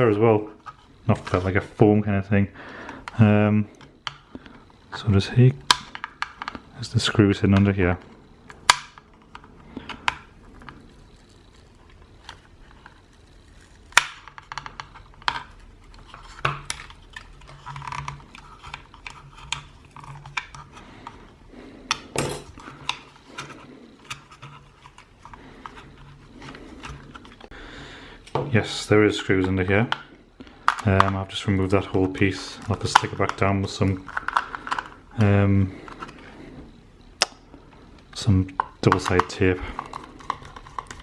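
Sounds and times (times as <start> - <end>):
hand tool clicking and scraping plastic: 8.5 - 27.6, 29.4 - 36.5, 38.0 - 41.0.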